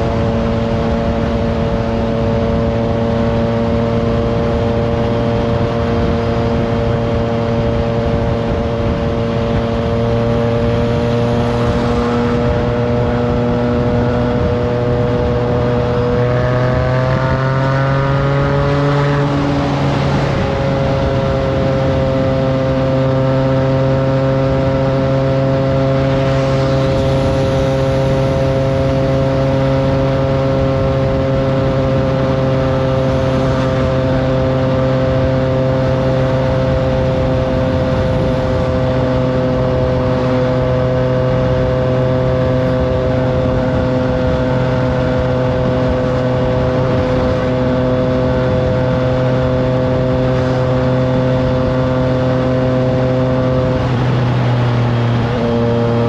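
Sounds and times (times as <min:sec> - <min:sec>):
motorcycle engine cruising: 0:00.0 - 0:56.0.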